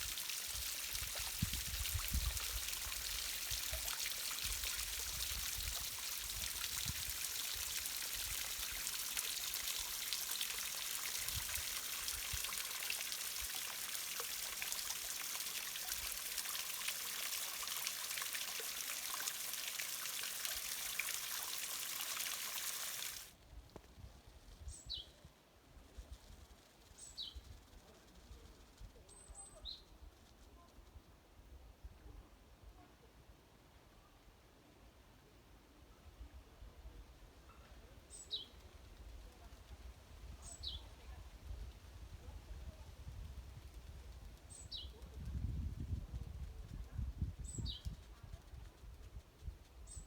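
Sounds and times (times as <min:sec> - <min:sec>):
stream rushing over rocks: 0:00.0 - 0:23.3.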